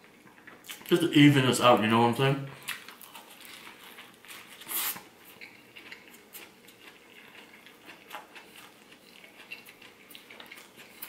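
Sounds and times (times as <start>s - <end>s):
person chewing crunchy food: 2.6s - 11.0s.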